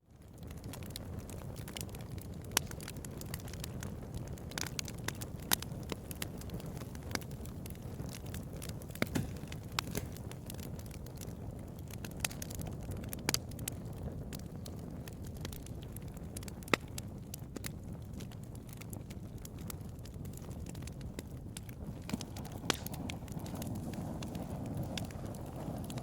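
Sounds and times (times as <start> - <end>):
bonfire crackling: 0.0 - 26.0
wood popping and snapping: 8.2 - 10.7, 21.6 - 26.0.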